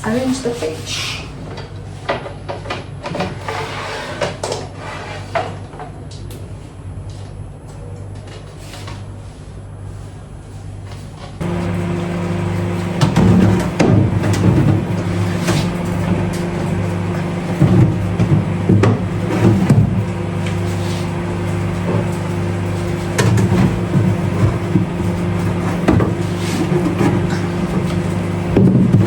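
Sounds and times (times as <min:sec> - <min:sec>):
steady low hum: 0:09.2 - 0:29.0.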